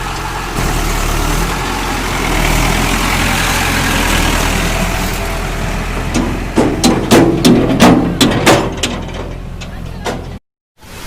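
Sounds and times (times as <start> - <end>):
diesel engine running: 0.0 - 10.4.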